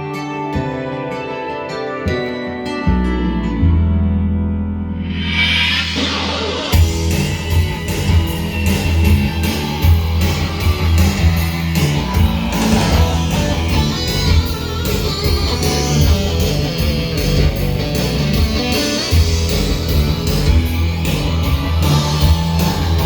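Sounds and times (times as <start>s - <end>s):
synth guitar melody: 0.0s - 23.0s
synth bass: 2.9s - 23.0s
steady drum beat: 5.9s - 23.0s.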